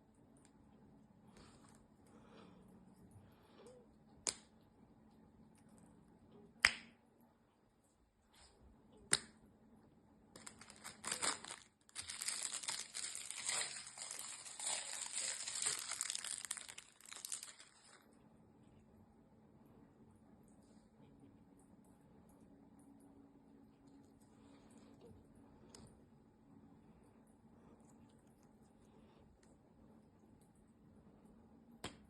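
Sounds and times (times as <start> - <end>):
plastic crinkling and rustling: 10.4 - 18.1.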